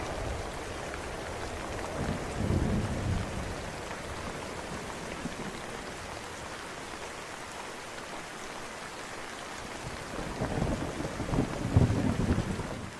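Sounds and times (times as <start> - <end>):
steady rain: 0.0 - 12.9
low thunder rumble: 1.9 - 3.6, 10.2 - 12.9.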